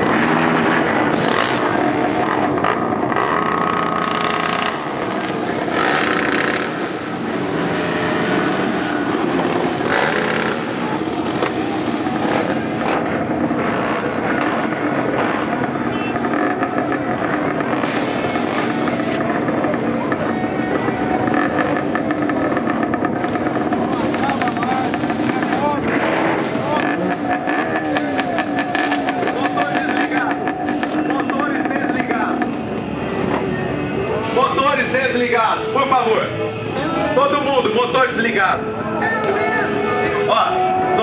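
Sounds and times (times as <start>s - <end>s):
trail motorcycle engines: 0.0s - 41.0s
motorcycle throttle blips: 8.8s - 33.5s.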